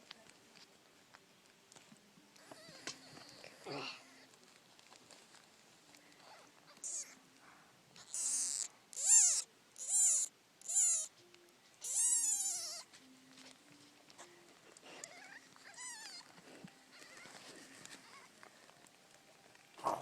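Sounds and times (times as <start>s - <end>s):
kittens mewing: 2.4s - 4.3s, 6.7s - 7.2s, 8.0s - 11.1s, 11.8s - 12.9s, 14.8s - 18.5s.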